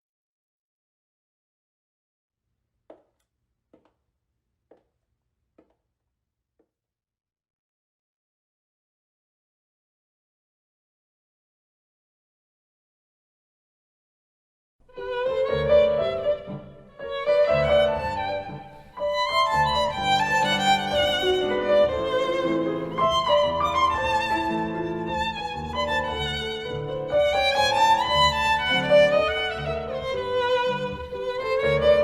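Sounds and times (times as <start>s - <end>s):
violin melody with vibrato: 14.9s - 32.0s.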